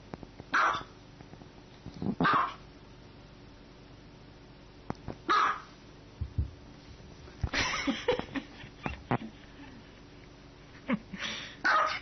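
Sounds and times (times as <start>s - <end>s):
animal calling harshly: 0.5s - 0.9s, 2.2s - 2.6s, 5.3s - 5.7s.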